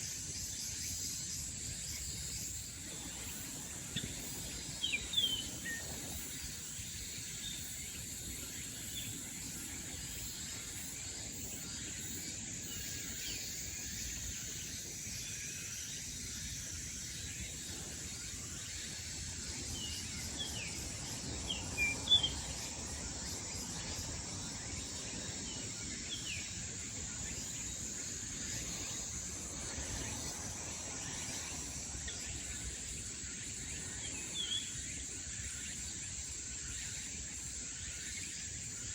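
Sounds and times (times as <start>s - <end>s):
high-pitched insect drone: 0.0s - 38.9s
bird chirps: 3.3s - 6.0s, 19.6s - 23.1s.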